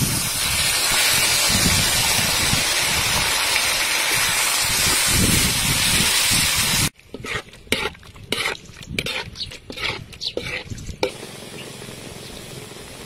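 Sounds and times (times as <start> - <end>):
squid sizzling in hot oil: 0.0 - 6.9
metal ladle scraping a wok: 7.1 - 10.8.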